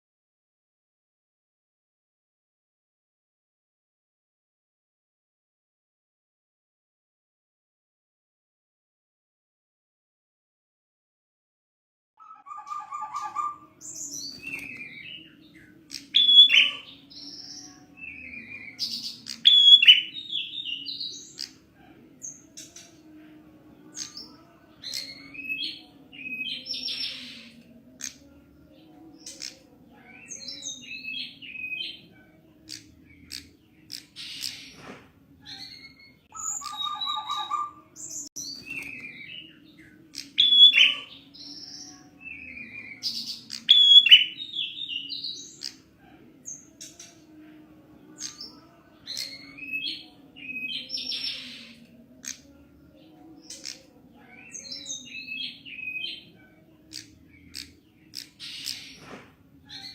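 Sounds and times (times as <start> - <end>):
prinia chirping call: 12.2 - 23.2, 35.4 - 47.4, 53.2 - 59.1.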